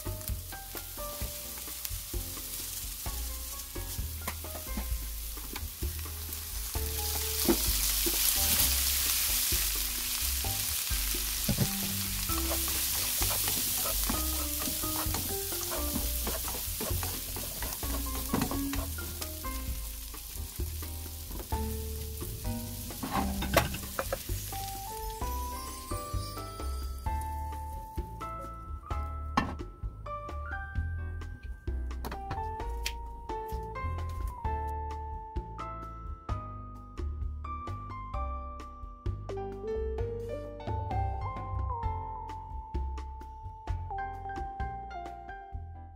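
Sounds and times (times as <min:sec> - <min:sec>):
meat sizzling in a wok: 0:00.0 - 0:28.3
spatula scraping a pan: 0:11.4 - 0:19.6, 0:22.8 - 0:24.4.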